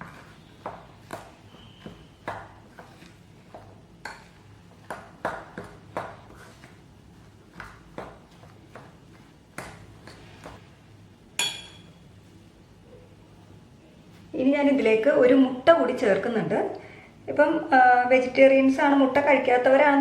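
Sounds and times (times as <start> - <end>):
sharp ringing ping on bowl: 11.4 - 11.9.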